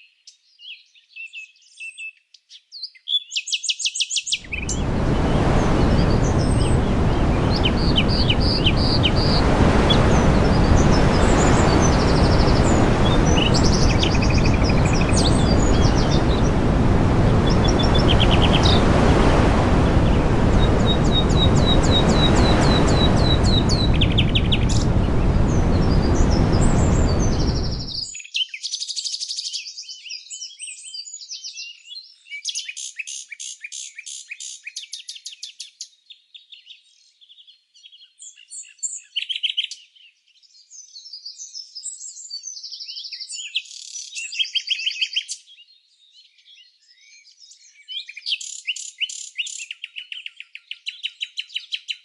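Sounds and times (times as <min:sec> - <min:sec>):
songbirds chirping and trilling: 0:00.0 - 0:52.0
loud steady rushing noise: 0:04.5 - 0:28.0.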